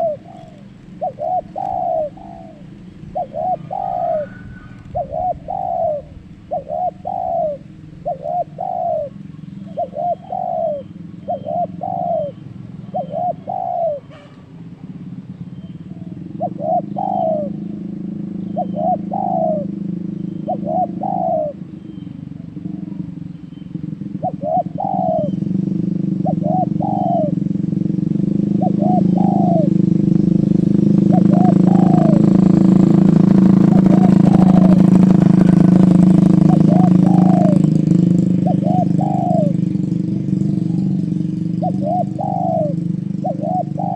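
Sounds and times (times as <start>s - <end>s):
dove cooing: 0.0s - 14.3s, 15.5s - 43.9s
low steady rumble: 0.0s - 43.9s.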